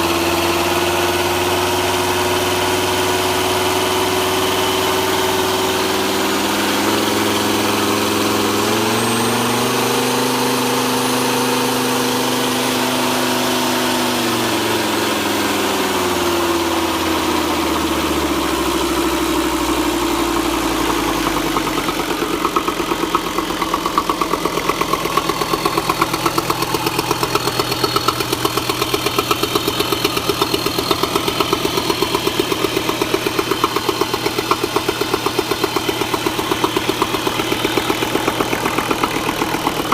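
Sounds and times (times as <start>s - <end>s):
diesel engine revving and idling: 0.0s - 39.9s.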